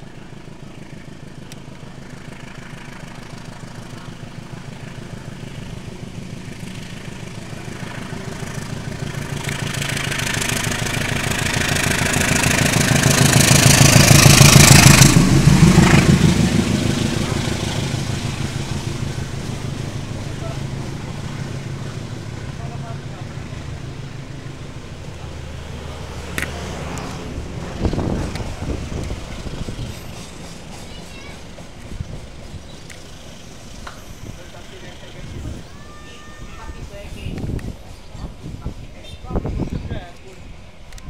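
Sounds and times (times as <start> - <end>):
diesel locomotive engine drone: 0.0 - 41.0
train carriages rolling: 2.0 - 41.0.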